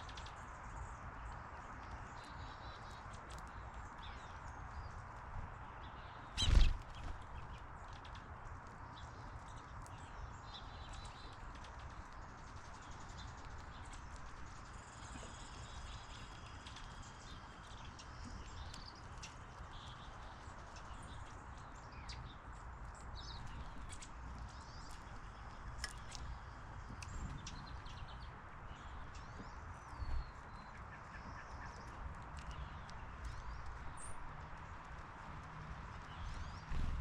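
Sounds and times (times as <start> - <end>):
birds chirping: 0.0 - 37.0
light taps and ticks: 22.1 - 28.0, 31.2 - 36.6.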